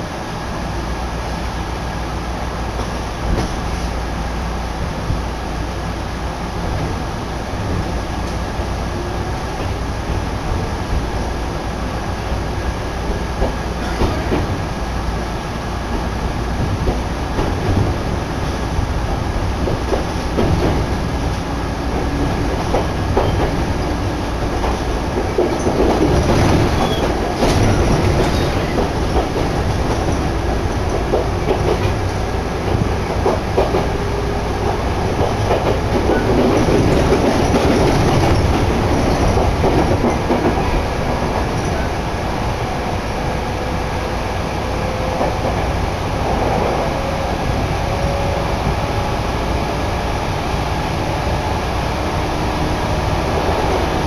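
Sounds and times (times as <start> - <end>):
faint train whine: 0.0 - 54.0
train rumble: 0.0 - 54.0
wheels clacking over rail joints: 15.9 - 42.0.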